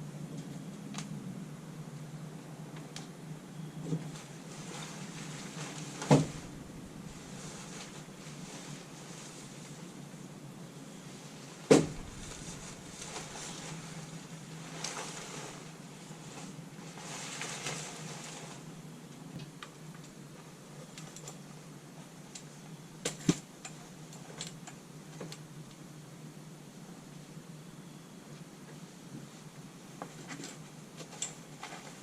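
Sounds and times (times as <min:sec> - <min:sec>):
rustling: 0:04.0 - 0:10.0, 0:11.7 - 0:18.7
sharp knocks: 0:11.7 - 0:13.5.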